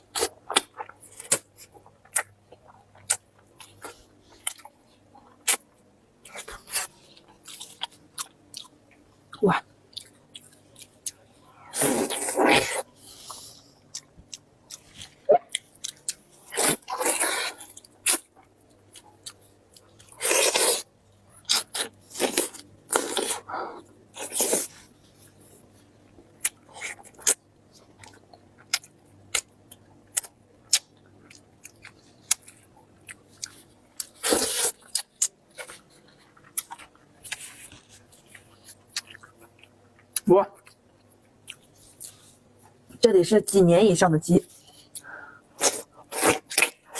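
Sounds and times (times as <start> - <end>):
chewing and crunching: 0.0 - 42.8, 44.5 - 46.9.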